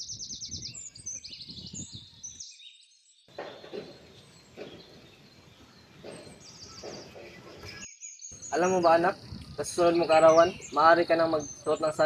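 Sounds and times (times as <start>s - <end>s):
small bird chirping: 0.0s - 12.0s
quiet outdoor ambience: 2.2s - 12.0s.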